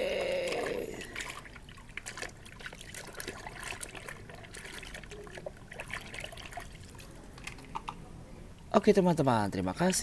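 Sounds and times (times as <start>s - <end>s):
water trickling: 0.0s - 7.9s.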